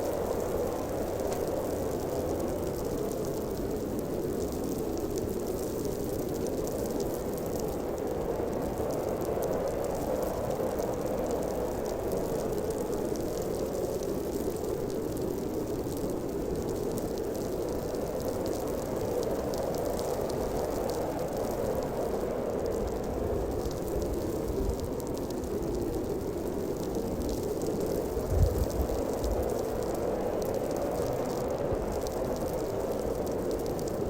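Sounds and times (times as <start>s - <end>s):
strong wind rushing: 28.2s - 28.9s.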